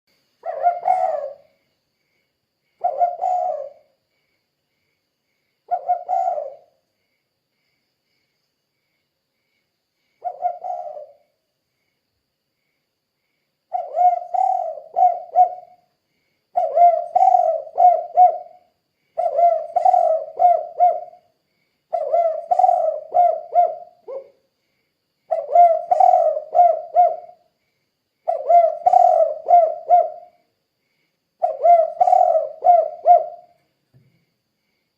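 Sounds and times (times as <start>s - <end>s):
dove cooing: 0.4s - 1.5s, 2.8s - 4.0s, 5.7s - 6.7s, 10.2s - 11.2s, 13.7s - 15.8s, 16.6s - 21.3s, 21.9s - 24.4s, 25.3s - 27.5s, 28.2s - 30.3s, 31.4s - 33.6s.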